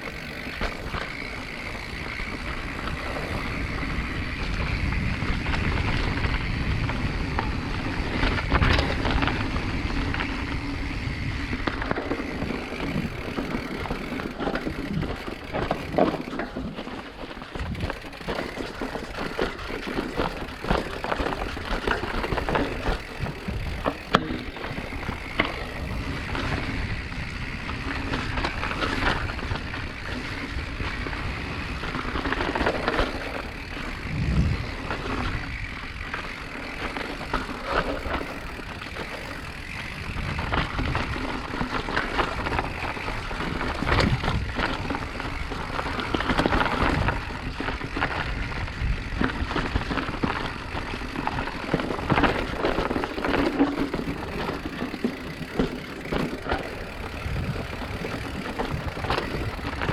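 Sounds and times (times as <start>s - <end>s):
mountain bike rattling over rough ground: 0.0s - 59.9s
wind on microphone: 20.7s - 36.2s, 56.8s - 59.9s.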